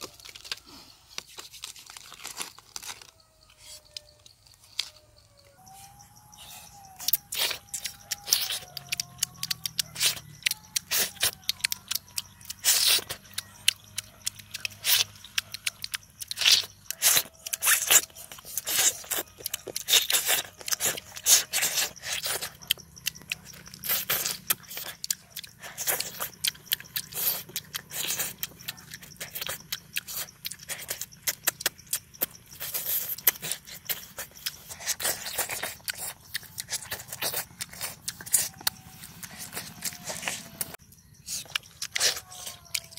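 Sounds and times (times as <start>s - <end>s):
person chewing and crunching food: 0.0s - 42.9s.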